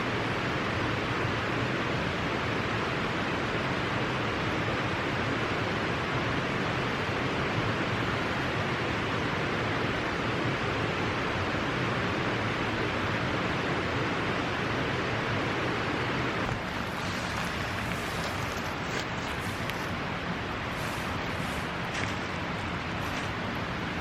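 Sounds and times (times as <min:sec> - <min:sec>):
water rushing: 0:15.6 - 0:24.0.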